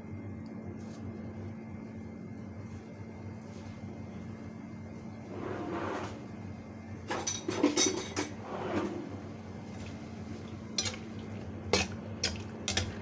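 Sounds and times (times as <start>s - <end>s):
steady low hum: 0.0s - 13.0s
utensils clinking on cookware: 7.1s - 8.4s, 10.8s - 11.1s, 11.7s - 13.0s.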